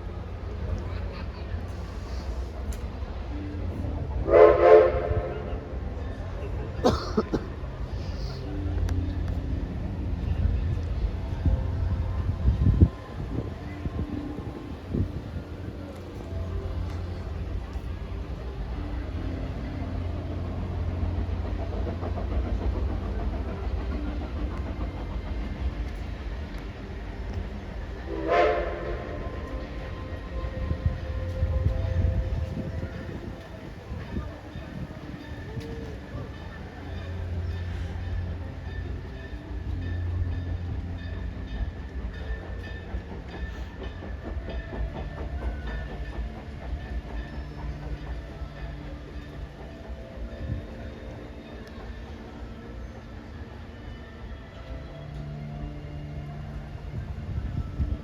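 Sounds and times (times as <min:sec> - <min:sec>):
train rumbling on track: 0:00.0 - 0:58.0
train cars rattling: 0:00.2 - 0:58.0
rail clatter: 0:06.8 - 0:58.0.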